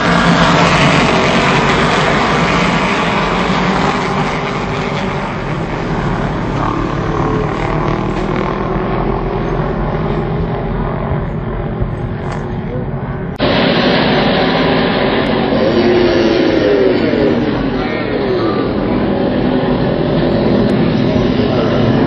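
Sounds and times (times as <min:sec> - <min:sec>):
racing motorbike engines: 0:00.0 - 0:22.0.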